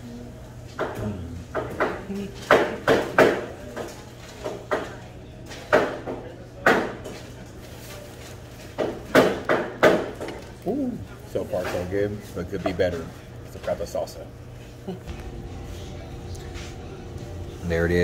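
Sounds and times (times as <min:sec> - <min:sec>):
low steady hum: 0:12.1 - 0:18.0.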